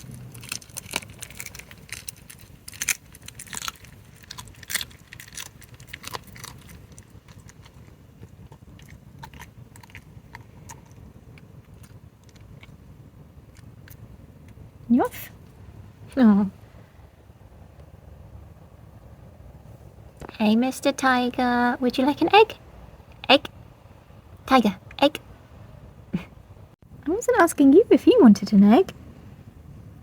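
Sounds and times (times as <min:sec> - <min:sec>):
fox chewing and crunching food: 0:00.0 - 0:14.6.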